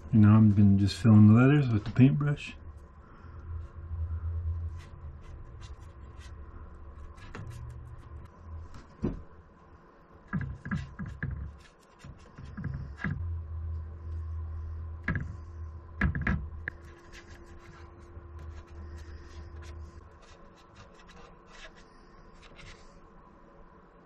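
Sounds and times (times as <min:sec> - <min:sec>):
low hum: 0:00.0 - 0:24.0
paintbrush scratching and dabbing: 0:04.5 - 0:06.4, 0:10.3 - 0:13.2, 0:16.7 - 0:23.0.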